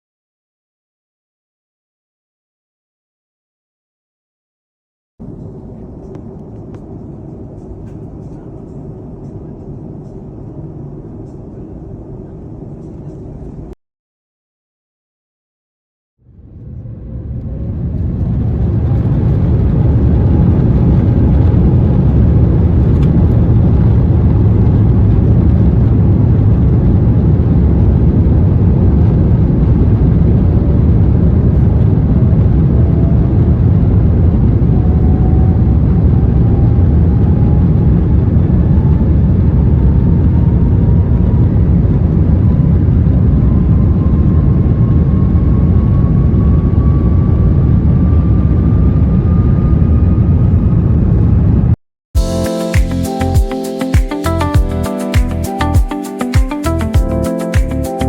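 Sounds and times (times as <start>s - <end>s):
jet engines roaring in cabin: 5.2s - 13.8s, 16.3s - 51.8s.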